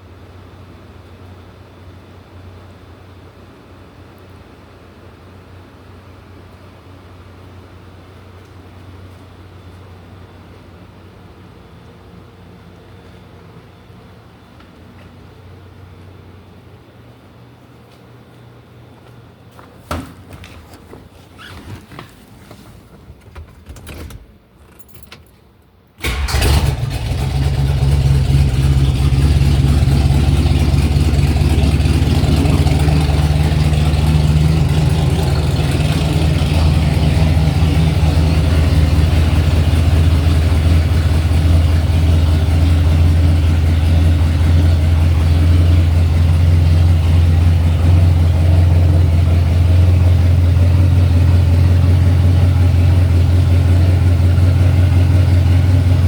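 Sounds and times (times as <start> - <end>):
engine starting and idling: 26.0 - 56.0.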